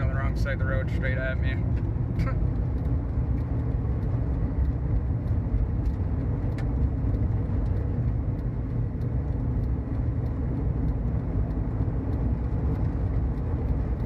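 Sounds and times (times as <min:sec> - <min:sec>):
road and engine rumble in car: 0:00.0 - 0:14.0
faint light ticks: 0:00.1 - 0:14.0.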